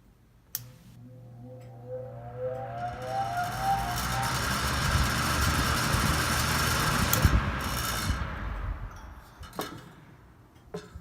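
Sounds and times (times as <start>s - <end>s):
table fan running: 2.1s - 8.9s.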